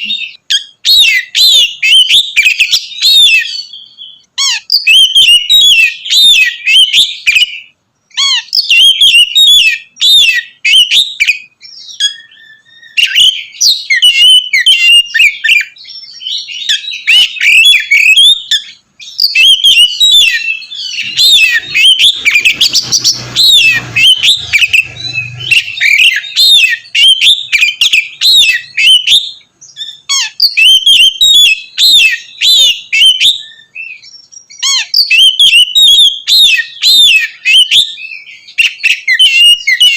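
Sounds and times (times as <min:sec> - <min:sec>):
bird singing chirps and whistles: 0:00.0 - 0:39.9.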